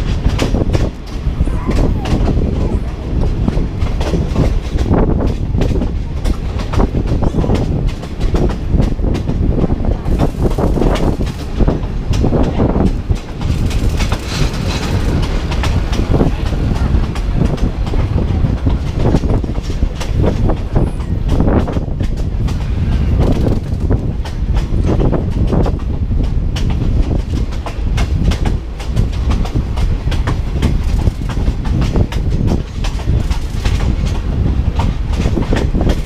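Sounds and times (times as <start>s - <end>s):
train clanks: 0.0s - 36.0s
train rumbling on rails: 0.0s - 36.0s
wheels clickety-clack: 0.0s - 36.0s.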